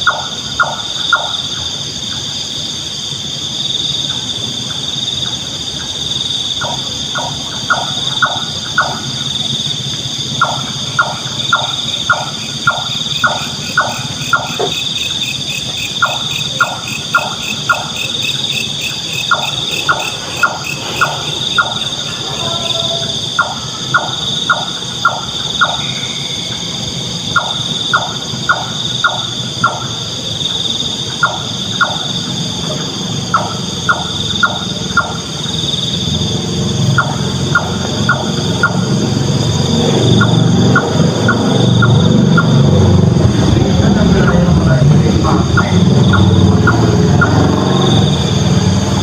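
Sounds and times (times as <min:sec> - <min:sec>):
high insect chorus: 0:00.0 - 0:49.0
pulsing insect: 0:00.0 - 0:49.0
nightjar calling: 0:03.8 - 0:39.1, 0:45.2 - 0:48.4.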